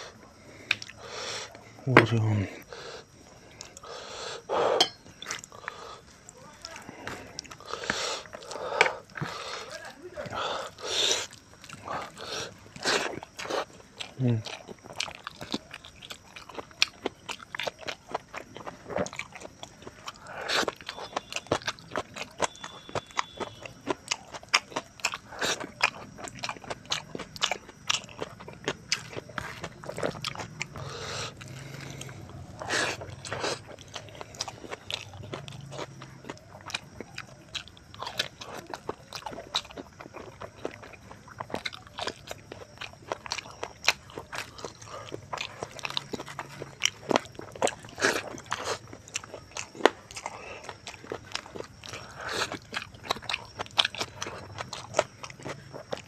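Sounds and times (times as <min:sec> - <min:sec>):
mouth chewing and smacking: 0:00.0 - 0:56.0.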